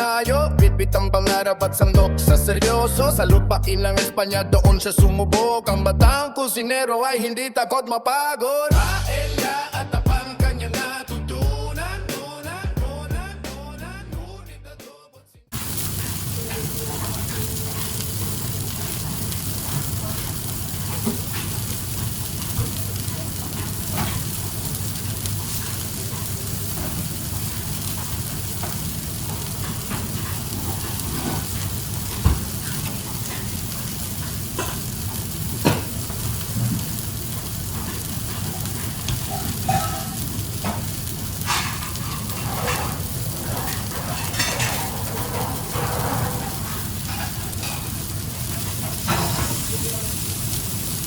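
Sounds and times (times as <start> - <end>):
food sizzling in a pan: 8.7 - 11.6, 15.5 - 51.0.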